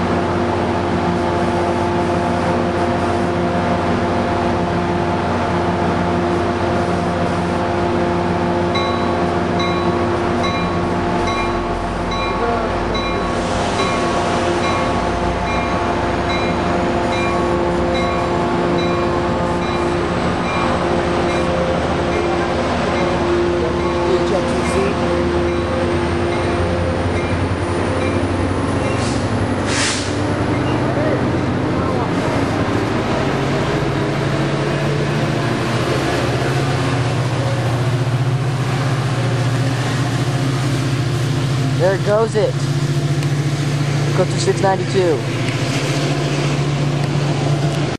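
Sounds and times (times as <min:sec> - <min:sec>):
diesel locomotive droning: 0:00.0 - 0:47.9
bell ringing: 0:08.7 - 0:29.0.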